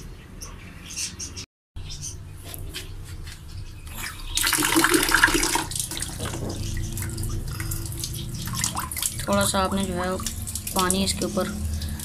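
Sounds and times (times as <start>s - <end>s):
water splashing on leaves: 4.0s - 12.0s.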